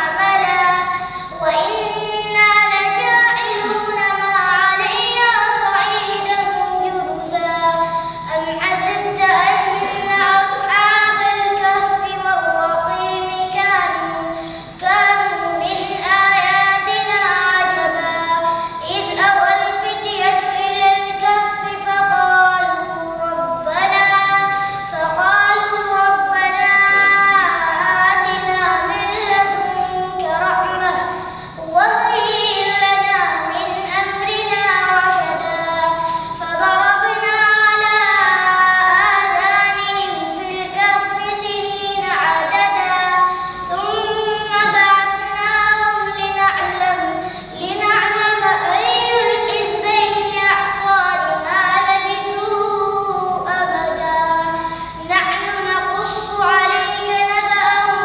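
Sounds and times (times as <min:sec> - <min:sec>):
boy chanting: 0:00.0 - 0:58.0.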